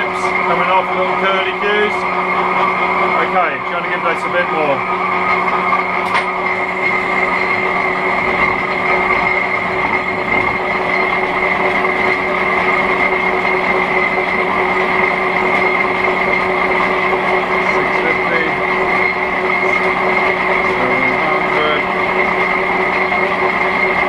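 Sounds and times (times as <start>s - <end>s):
lathe cutting metal: 0.0s - 24.0s.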